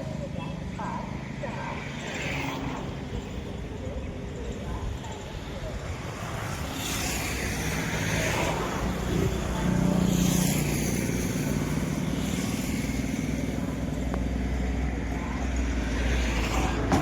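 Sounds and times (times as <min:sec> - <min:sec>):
train running on track: 0:00.0 - 0:17.0.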